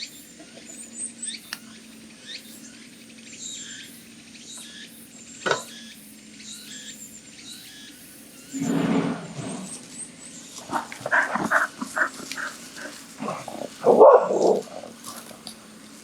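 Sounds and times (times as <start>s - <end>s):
dog barking and growling: 10.7s - 15.4s.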